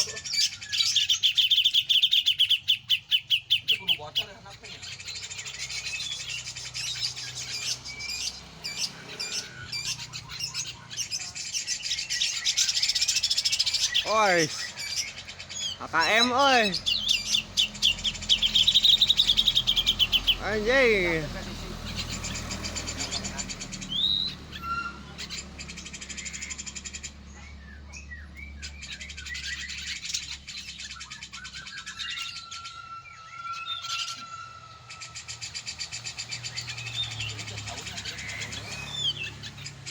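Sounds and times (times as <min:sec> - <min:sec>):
bird chirping and whistling: 0:00.0 - 0:21.2, 0:21.9 - 0:39.9
bulbul calling: 0:00.0 - 0:39.9.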